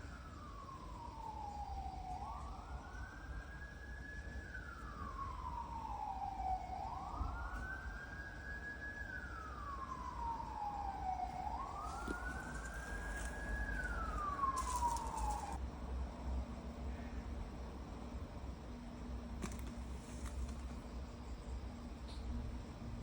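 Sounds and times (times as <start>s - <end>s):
wailing siren: 0.0s - 15.6s
faint clicks and rustles: 11.2s - 15.6s, 19.4s - 21.0s.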